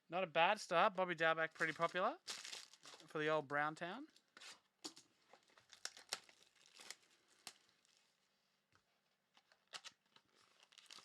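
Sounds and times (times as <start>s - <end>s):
cards and plastic packaging rustling: 1.5s - 3.3s, 4.1s - 8.3s, 9.4s - 11.0s.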